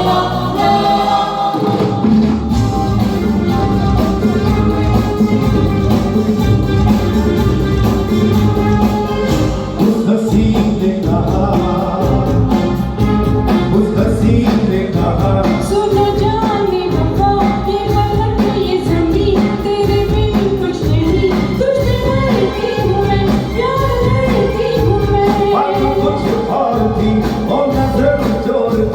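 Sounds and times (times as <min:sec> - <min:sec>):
band accompaniment: 0:00.0 - 0:28.9
person singing: 0:09.6 - 0:28.9.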